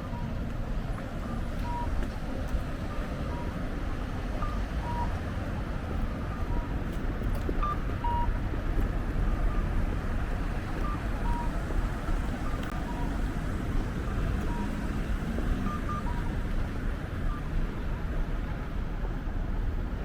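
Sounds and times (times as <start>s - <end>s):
faint electronic beeps: 0.0s - 3.7s, 4.3s - 6.9s, 7.6s - 8.4s, 10.4s - 16.4s
low traffic rumble: 0.0s - 20.0s.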